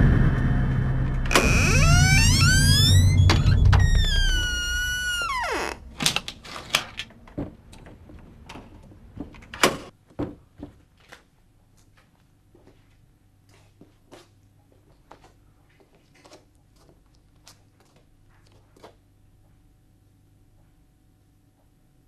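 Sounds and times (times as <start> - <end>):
bending downward sliding tone: 1.3 - 5.8.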